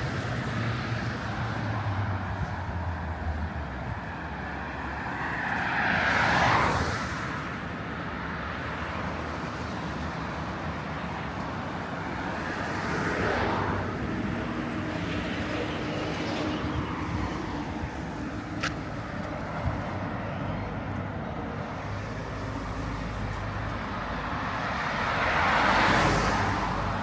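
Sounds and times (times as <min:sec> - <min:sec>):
cars passing: 0:00.0 - 0:27.0
steady traffic hum: 0:00.0 - 0:27.0.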